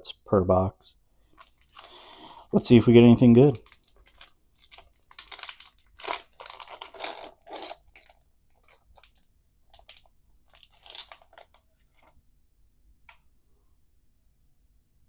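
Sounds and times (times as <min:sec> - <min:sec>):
foil wrapper tearing and crinkling: 0:01.3 - 0:12.1.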